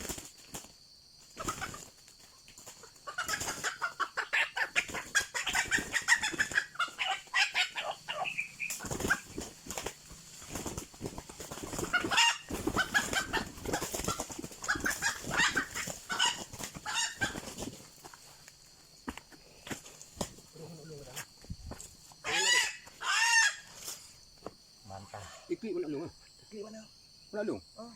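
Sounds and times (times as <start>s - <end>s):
junglefowl clucking: 1.4s - 17.9s, 22.2s - 24.0s.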